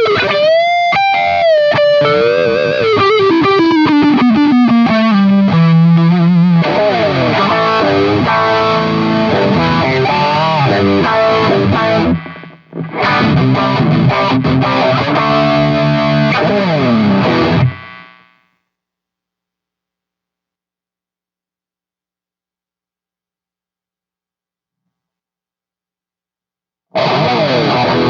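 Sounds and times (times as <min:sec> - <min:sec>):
distorted electric guitar riff: 0:00.0 - 0:18.6, 0:26.9 - 0:28.0.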